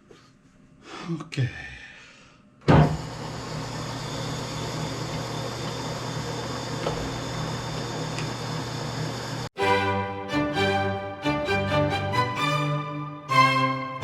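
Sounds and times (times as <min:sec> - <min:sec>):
electric motor humming: 0:03.0 - 0:09.5.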